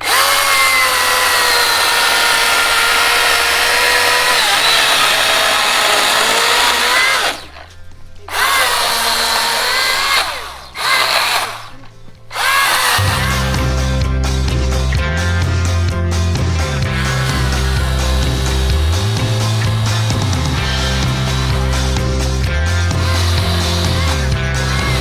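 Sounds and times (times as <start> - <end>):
power tool motor running: 0.0 - 14.0, 16.9 - 25.0
music: 5.7 - 8.4, 11.8 - 25.0.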